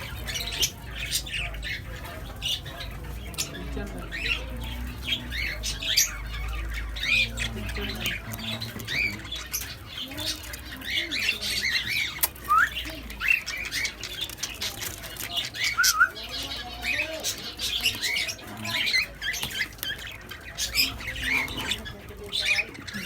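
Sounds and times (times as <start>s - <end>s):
doves chirping: 0.0s - 23.0s
scratchy clicks of feet and wings: 7.9s - 16.5s.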